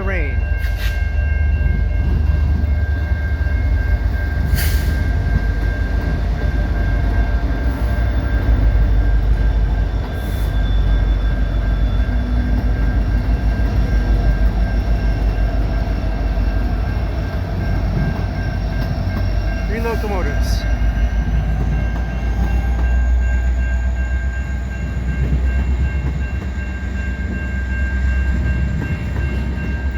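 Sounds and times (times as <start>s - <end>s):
diesel locomotives rumbling past: 0.0s - 29.9s.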